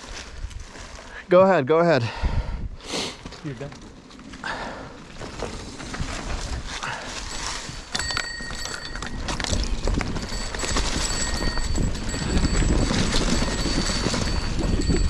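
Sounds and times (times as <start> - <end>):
wind rumble on microphone: 2.2 - 2.8, 5.3 - 15.0
bike rattling over rough trail: 3.3 - 15.0.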